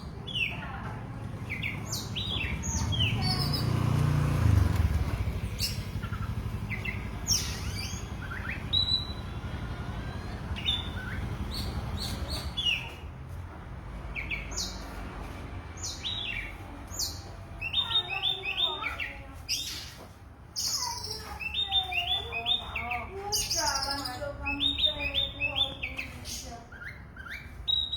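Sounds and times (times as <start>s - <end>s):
bird singing whistled chirping notes: 5.5s - 13.0s, 20.6s - 27.9s.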